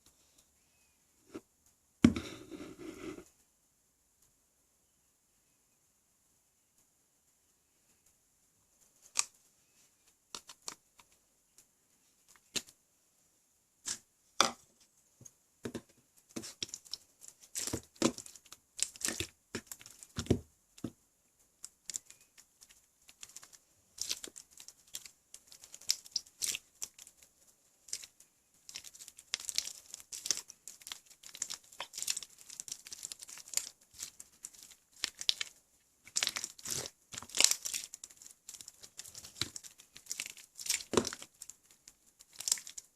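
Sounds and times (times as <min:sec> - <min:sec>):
slime crackling and popping: 0:16.3 - 0:20.9, 0:21.6 - 0:42.9.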